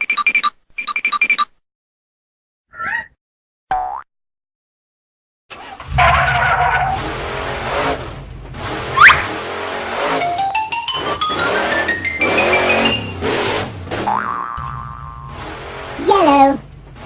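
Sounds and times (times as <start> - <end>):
tyre skid: 5.6 - 10.3
toy car engine: 8.6 - 13.7.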